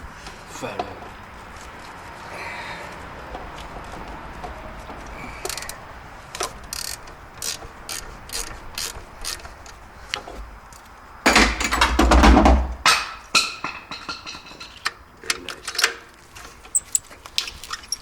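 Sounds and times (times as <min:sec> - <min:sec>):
ratchet wrench clicking: 0:05.4 - 0:05.8, 0:06.7 - 0:09.5.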